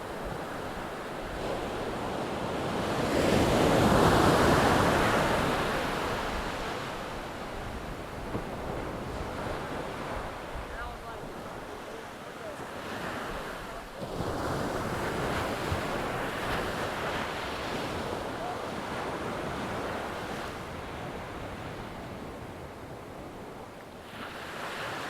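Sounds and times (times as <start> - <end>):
wind buffeting microphone: 0.0 - 12.0
ocean surf breaking: 0.0 - 25.0.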